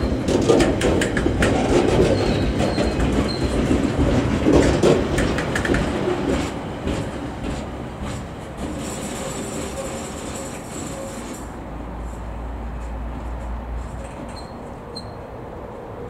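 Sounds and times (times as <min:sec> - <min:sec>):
freight train wheels clattering: 0:00.0 - 0:11.6.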